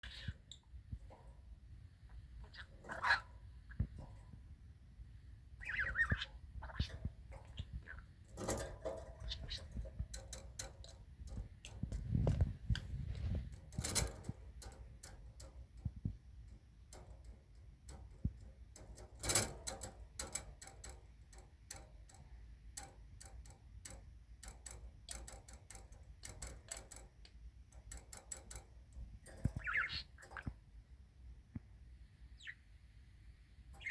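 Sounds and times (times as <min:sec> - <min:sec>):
budgerigar chirp: 0:05.6 - 0:06.9
budgerigar clicking and tapping: 0:05.6 - 0:30.6.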